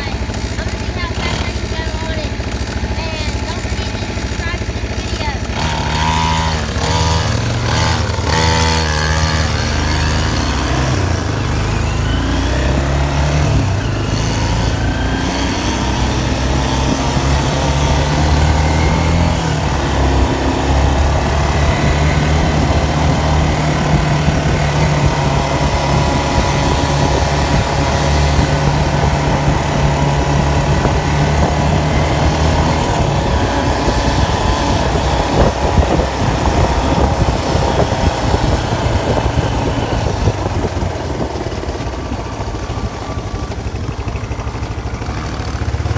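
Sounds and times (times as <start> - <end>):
dirt bike engine running: 0.0 - 45.9.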